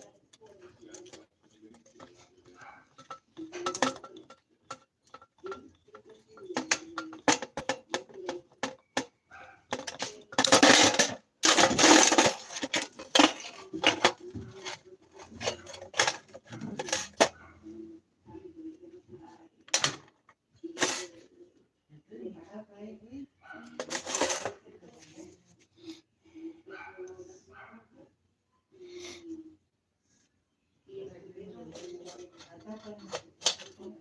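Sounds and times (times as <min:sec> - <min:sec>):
small metal parts clinking: 0:00.0 - 0:09.1, 0:09.7 - 0:17.4, 0:23.8 - 0:24.6.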